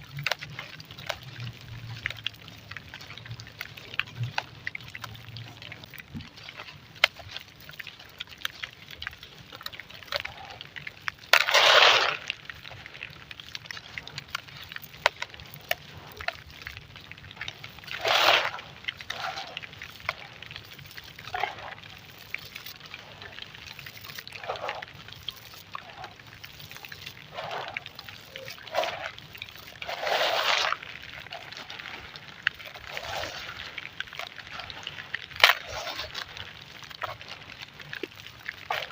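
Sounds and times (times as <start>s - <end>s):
sand crumbling: 0.0s - 38.9s
sand crunching: 11.3s - 12.4s, 17.8s - 19.7s, 27.3s - 36.4s.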